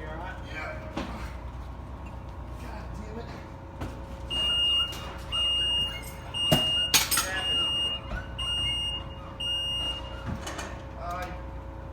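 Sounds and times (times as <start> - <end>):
low machine-room hum: 0.0 - 11.9
electronic warning beeper: 4.3 - 10.2.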